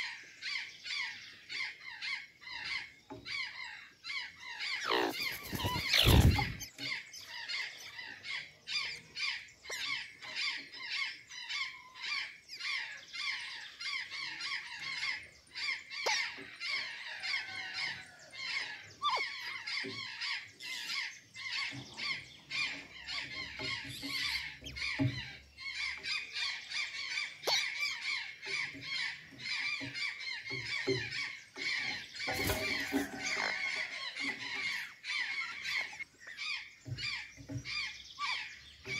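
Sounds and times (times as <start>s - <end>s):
jays squawking: 4.6s - 9.1s.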